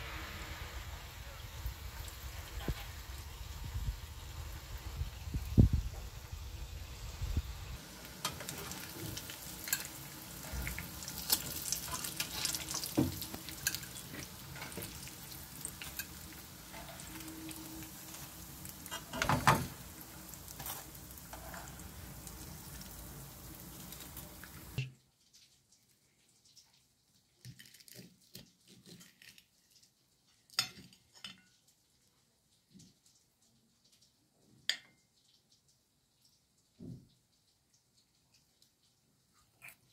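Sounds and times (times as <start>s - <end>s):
food deep-frying in oil: 0.0s - 39.9s
tongs clanking: 8.2s - 19.8s
metal tongs clicking on pan: 9.6s - 10.0s, 11.2s - 14.9s.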